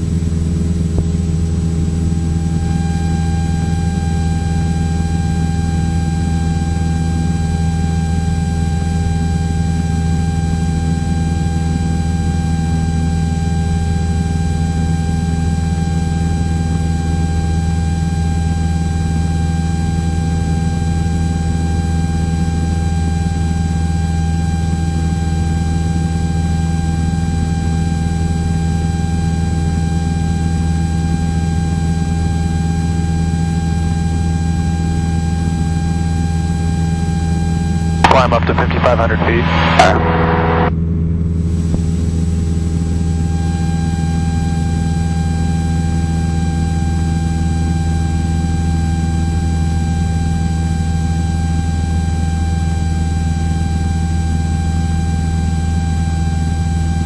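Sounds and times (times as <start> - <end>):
propeller plane engine droning: 0.0 - 57.0
thin steady whine: 1.4 - 12.1, 37.7 - 40.8.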